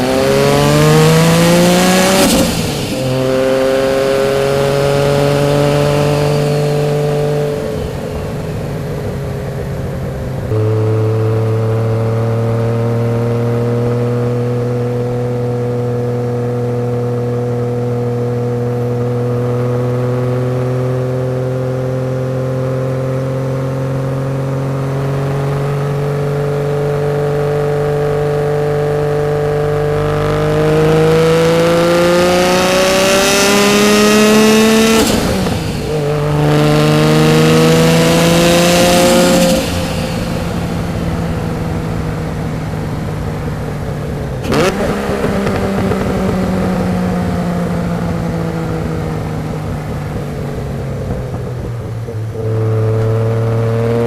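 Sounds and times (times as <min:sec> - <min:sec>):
car engine accelerating: 0:00.0 - 0:54.0
exhaust crack: 0:30.7 - 0:53.6.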